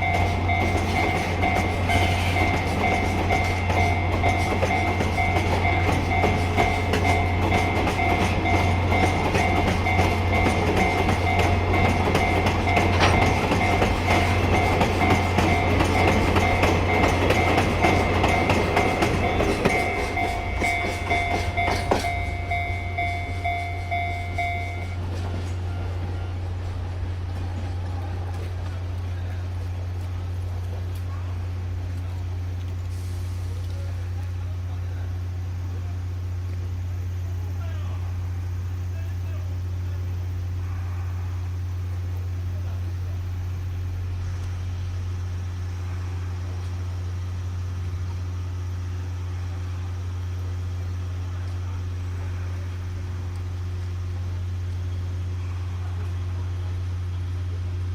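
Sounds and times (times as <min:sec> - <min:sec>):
alarm bell ringing: 0:00.0 - 0:25.0
train wheels clicking over rail joints: 0:00.0 - 0:34.4.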